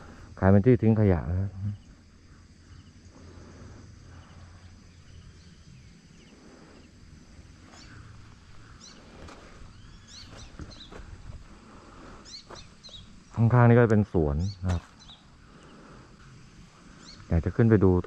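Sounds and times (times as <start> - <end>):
wind rumble on microphone: 8.0 - 13.2.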